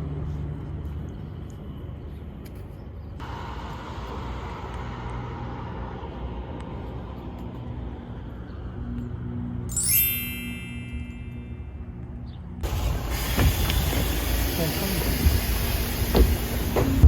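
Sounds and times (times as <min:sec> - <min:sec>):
hiss: 0:12.6 - 0:17.0.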